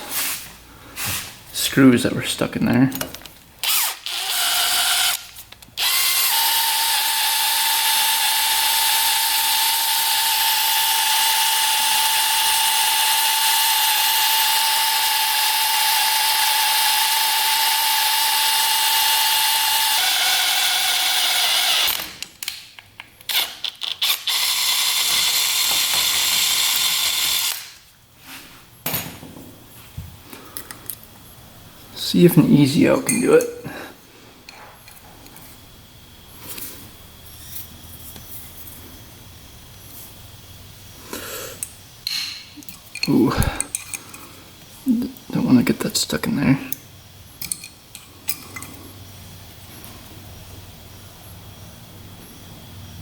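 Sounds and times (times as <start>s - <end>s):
power drill running: 3.6s - 22.2s, 23.3s - 27.8s.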